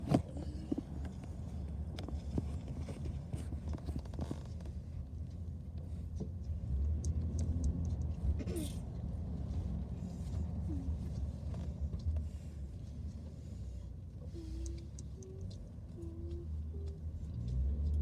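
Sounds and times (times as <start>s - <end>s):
car interior rumble: 0.0s - 18.0s
small clicks and rattles: 1.9s - 8.4s.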